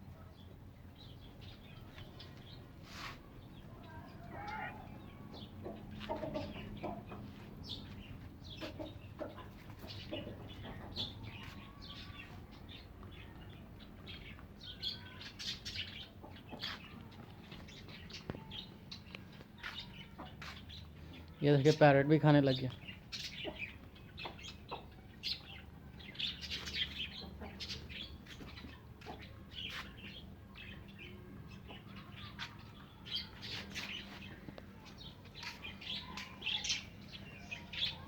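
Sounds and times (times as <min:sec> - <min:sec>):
chicks cheeping: 0:00.4 - 0:22.1, 0:22.8 - 0:38.0
hens clucking: 0:04.2 - 0:12.4, 0:26.5 - 0:29.9.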